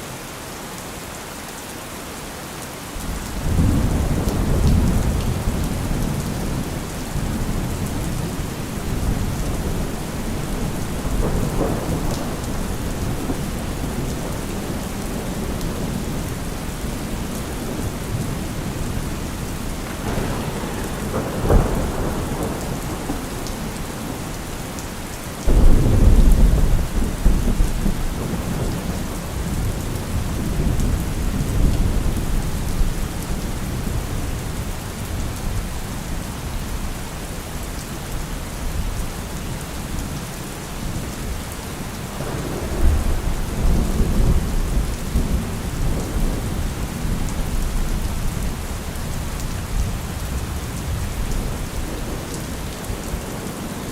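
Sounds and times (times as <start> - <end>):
heavy rain pouring: 0.0 - 53.9.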